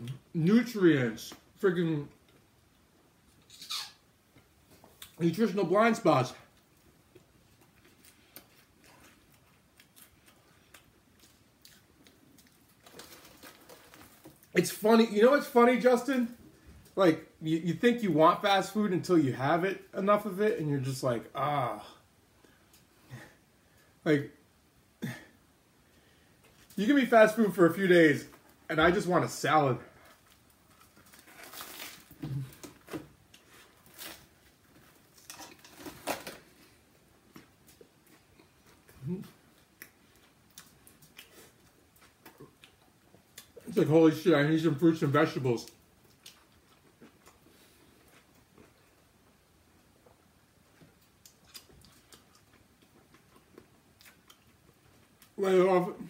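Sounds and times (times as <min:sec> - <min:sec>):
person chewing: 0:06.5 - 0:14.6, 0:34.8 - 0:43.7, 0:46.0 - 0:49.1, 0:50.0 - 0:55.4
person eating crunchy food: 0:07.2 - 0:14.5, 0:51.0 - 0:55.3.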